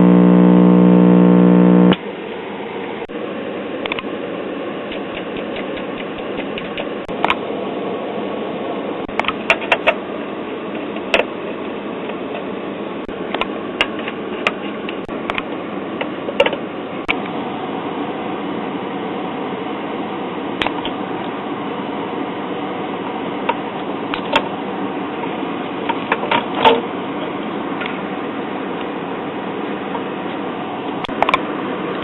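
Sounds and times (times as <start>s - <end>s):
radio static hiss: 0.0s - 2.0s
sharp crackles and clicks: 0.0s - 2.0s.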